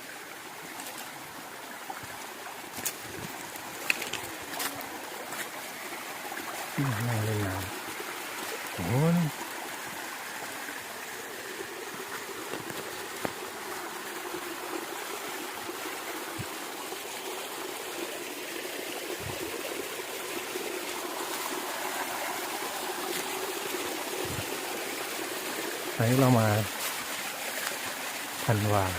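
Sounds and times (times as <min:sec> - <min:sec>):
stream water trickling over rock: 0:00.0 - 0:28.9.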